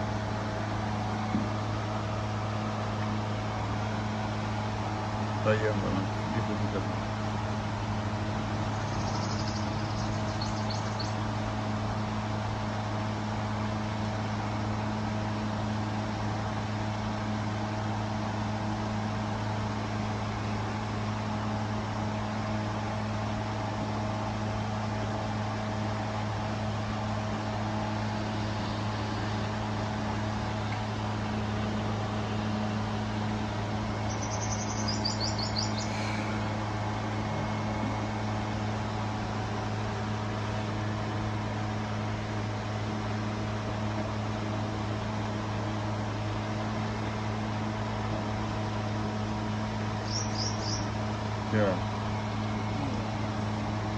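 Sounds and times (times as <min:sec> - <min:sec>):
low mechanical hum: 0:00.0 - 0:53.9
bird chirps: 0:08.8 - 0:11.2, 0:34.0 - 0:36.4, 0:50.0 - 0:51.0.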